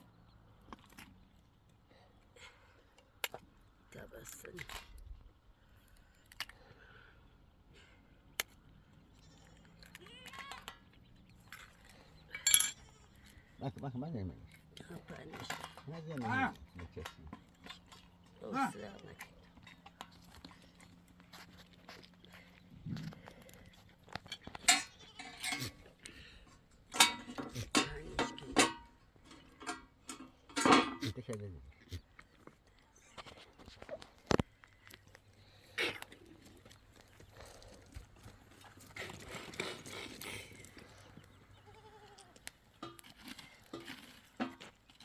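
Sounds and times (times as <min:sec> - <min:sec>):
metal dishes clattering and clinking: 0:12.2 - 0:13.0, 0:15.1 - 0:18.2, 0:24.3 - 0:25.9, 0:26.9 - 0:31.2
sheep bleating: 0:41.6 - 0:42.3.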